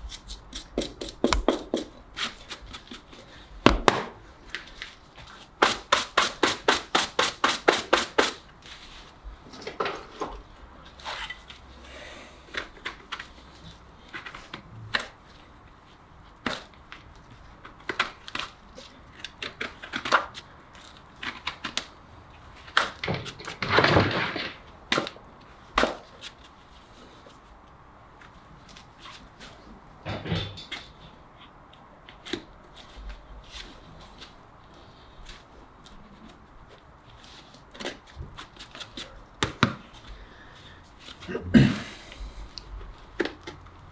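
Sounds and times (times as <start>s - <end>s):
tool scraping hoof: 0.0s - 3.1s
sharp taps on horse hoof: 0.1s - 2.0s, 3.6s - 4.2s.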